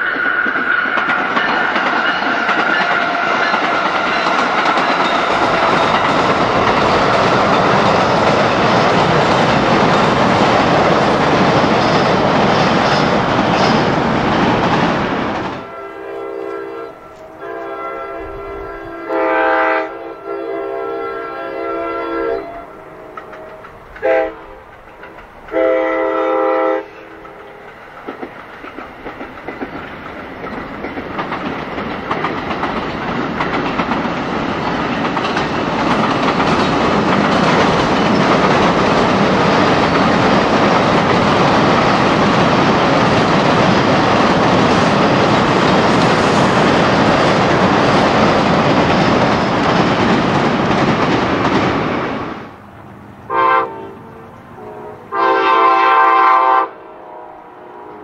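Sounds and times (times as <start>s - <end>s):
train wheels rumbling on rails: 0.0s - 20.6s, 21.6s - 56.4s
locomotive horn blasts: 15.6s - 24.6s, 25.5s - 27.1s, 53.3s - 58.0s.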